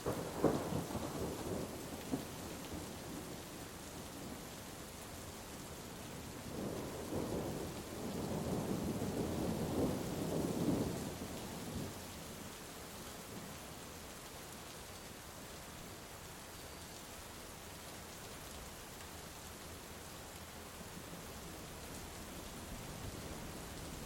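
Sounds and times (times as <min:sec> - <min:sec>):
steady rain: 0:00.0 - 0:24.0
thunder rumbling: 0:06.5 - 0:11.1.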